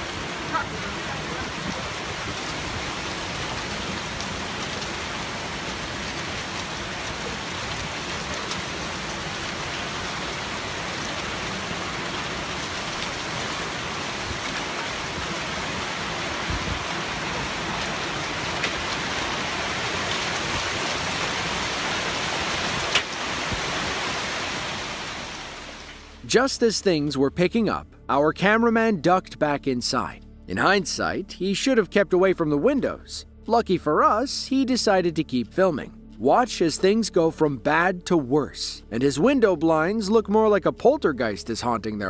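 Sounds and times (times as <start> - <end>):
heavy rain and hail: 0.0 - 26.2
sharp hail hits: 14.1 - 23.8.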